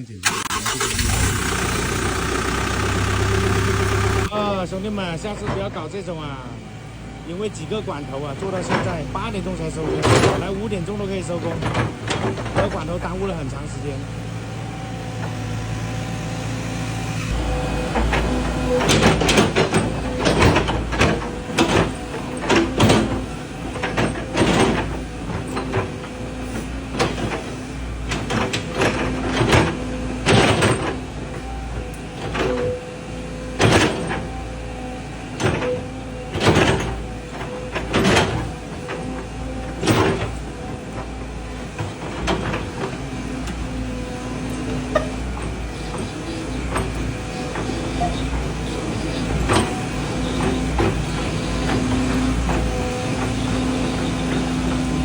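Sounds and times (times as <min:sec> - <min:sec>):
diesel engine running: 0:00.0 - 0:55.0
loud engine surges: 0:00.2 - 0:05.6.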